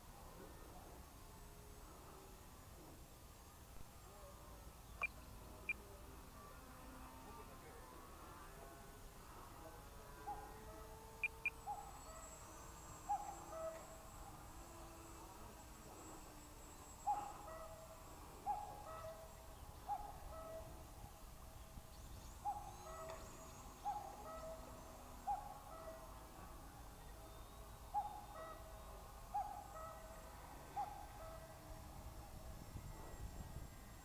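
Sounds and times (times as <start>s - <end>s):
bird hooting call: 11.2s - 13.9s, 16.9s - 17.8s, 18.4s - 20.8s, 22.3s - 26.1s, 27.3s - 30.1s.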